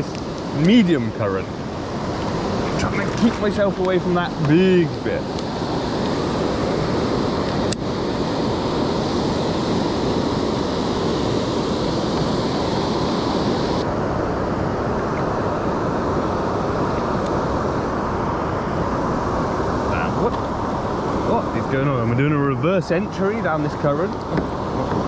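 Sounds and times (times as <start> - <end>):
wind buffeting microphone: 0.8 - 11.6
rushing river water: 5.2 - 11.2.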